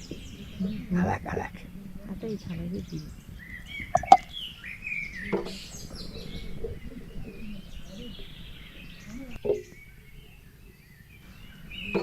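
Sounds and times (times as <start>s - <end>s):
small birds chirping: 0.0s - 12.0s
sharp knocks: 3.8s - 4.3s.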